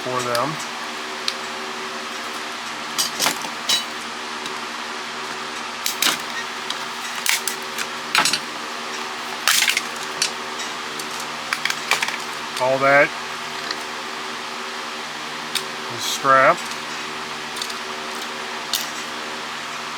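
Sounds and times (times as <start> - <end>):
steady background hum: 0.0 - 19.9
plastic parts clicking and clattering: 5.9 - 8.5, 9.3 - 10.4, 11.0 - 12.7, 13.5 - 13.9, 16.5 - 19.1.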